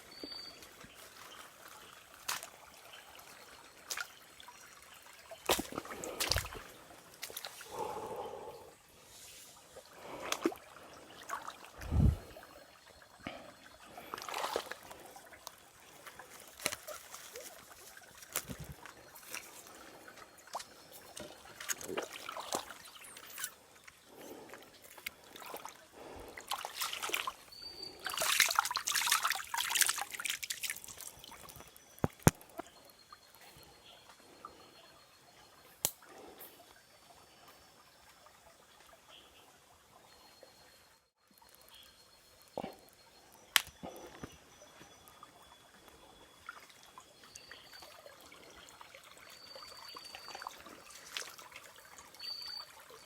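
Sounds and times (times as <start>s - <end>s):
shallow water sloshing: 14.0s - 31.6s.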